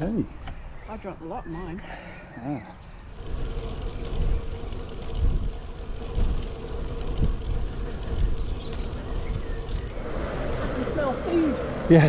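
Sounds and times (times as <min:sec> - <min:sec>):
tyre rumble on road: 0:03.1 - 0:11.9
wind rushing over microphone: 0:03.1 - 0:12.0.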